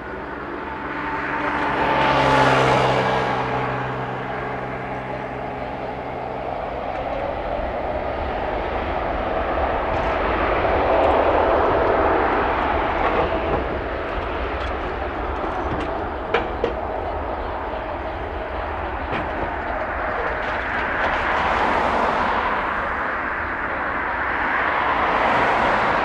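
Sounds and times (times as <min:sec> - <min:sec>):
jet engine rushing noise: 0:06.4 - 0:26.0.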